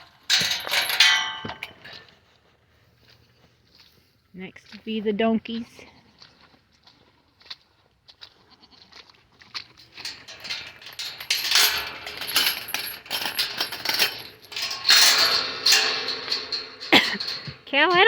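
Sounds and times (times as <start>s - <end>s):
clinking: 0.0s - 2.0s, 9.9s - 18.0s.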